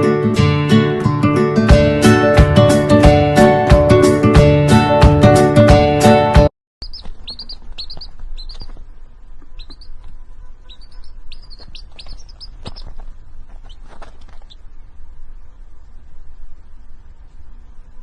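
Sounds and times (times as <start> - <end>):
small bird chirping: 6.8 - 16.9
steady low hum: 6.8 - 18.0.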